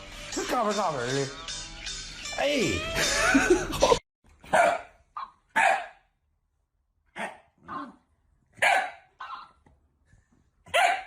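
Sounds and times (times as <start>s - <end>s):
music: 0.0s - 4.0s
voice: 0.4s - 1.4s, 2.4s - 2.8s
dog barking: 4.4s - 6.1s, 7.1s - 8.0s, 8.6s - 9.6s, 10.6s - 11.0s.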